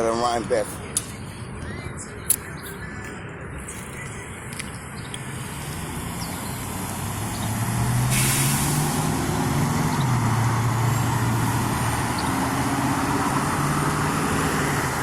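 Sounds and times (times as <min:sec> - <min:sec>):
air-brake hiss: 0:08.0 - 0:09.1.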